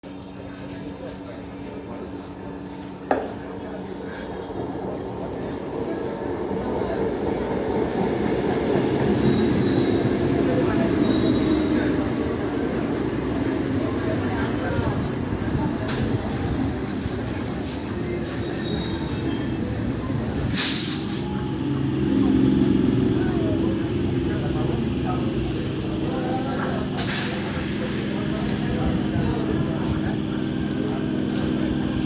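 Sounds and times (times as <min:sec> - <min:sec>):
train wheels on rails: 0:00.1 - 0:32.0
faint wheel squeal: 0:09.0 - 0:13.2, 0:17.0 - 0:21.6
loud burst of hiss: 0:20.5 - 0:21.3.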